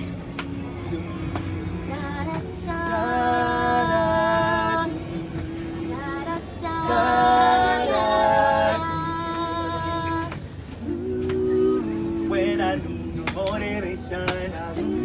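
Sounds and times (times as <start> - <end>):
vocal group singing in harmony: 0.7 - 15.0.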